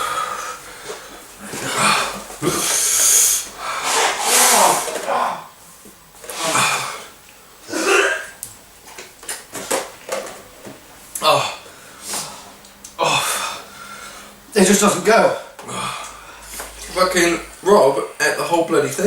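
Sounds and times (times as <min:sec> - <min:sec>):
people breathing hard and hissing: 0:00.0 - 0:05.4, 0:11.6 - 0:14.4, 0:15.6 - 0:17.5
people groaning: 0:01.4 - 0:03.2, 0:04.3 - 0:05.5, 0:06.3 - 0:07.1, 0:11.2 - 0:11.6, 0:12.9 - 0:13.7, 0:15.6 - 0:16.2.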